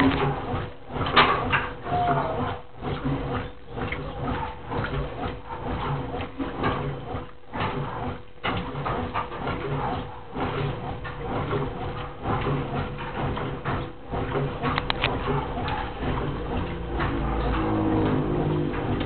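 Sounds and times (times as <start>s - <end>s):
washing machine water sloshing: 0.0s - 19.0s.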